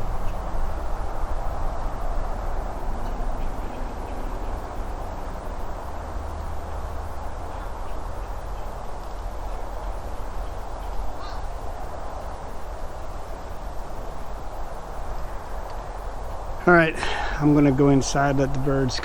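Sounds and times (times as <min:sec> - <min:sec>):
low wind rumble: 0:00.0 - 0:19.0
outdoor hiss: 0:00.0 - 0:19.0
wild birds calling: 0:00.0 - 0:19.0.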